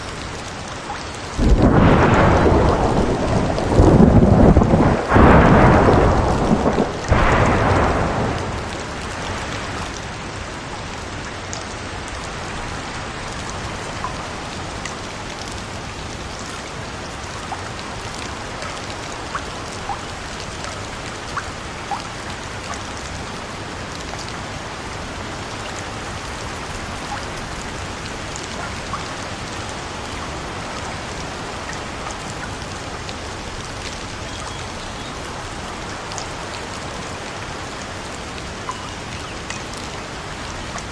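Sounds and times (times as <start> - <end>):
steady rain: 0.0 - 40.9
thunder rolling: 1.4 - 9.6, 13.4 - 31.3.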